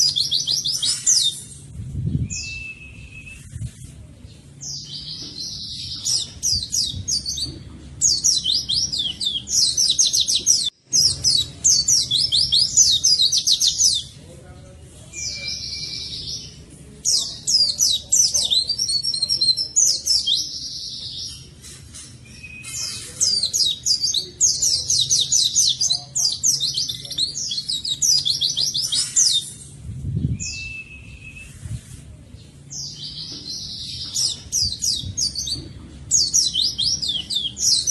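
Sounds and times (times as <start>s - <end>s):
bird twittering song: 0.0s - 37.9s
bird level whistles: 2.2s - 3.6s, 30.3s - 31.7s.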